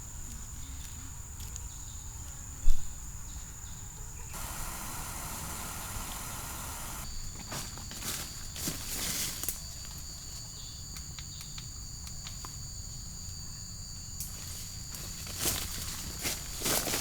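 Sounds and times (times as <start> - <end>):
broad hiss: 4.3 - 7.1
insects trilling: 4.3 - 7.1.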